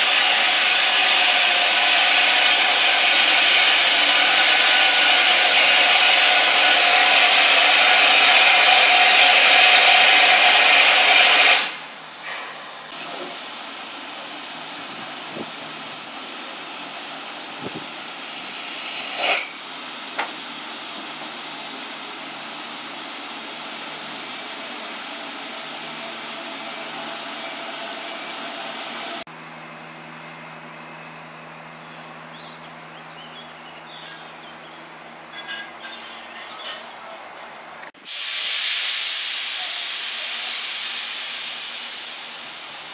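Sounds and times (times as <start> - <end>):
steam locomotive hissing steam: 0.0 - 29.3, 37.9 - 42.9.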